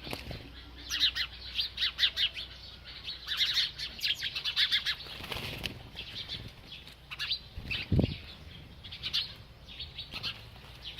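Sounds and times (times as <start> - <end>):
small bird chirping: 0.0 - 10.9.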